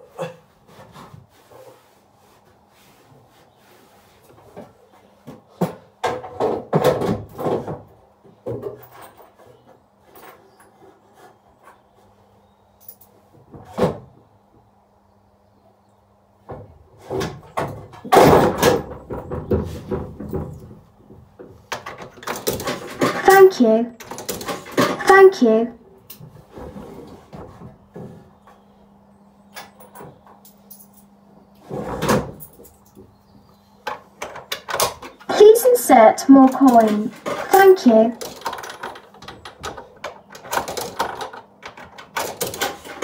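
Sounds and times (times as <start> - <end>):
kiddie ride knocking and rattling: 5.5 - 10.4, 16.4 - 25.5, 36.2 - 43.0.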